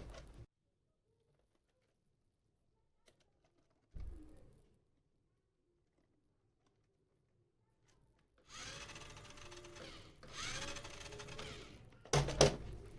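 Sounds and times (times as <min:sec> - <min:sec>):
toy car electric motor whirring: 0:08.4 - 0:12.0.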